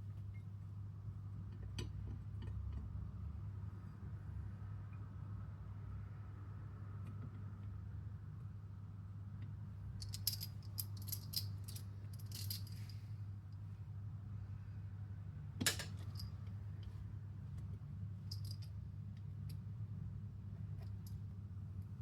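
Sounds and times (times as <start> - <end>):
small metal parts clicking: 10.0 - 13.0, 18.3 - 18.7.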